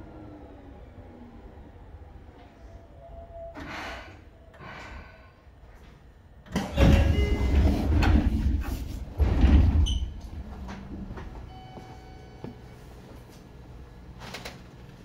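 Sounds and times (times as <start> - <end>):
loud rumbling clatter: 6.6 - 11.4.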